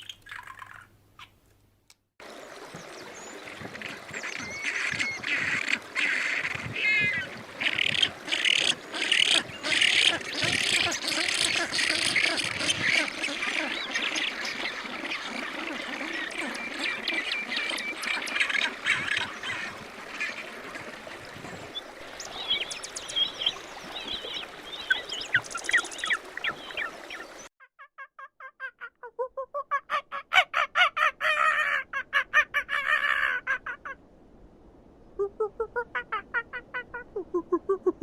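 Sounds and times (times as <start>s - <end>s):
farmyard fowl calling: 3.8s - 19.7s.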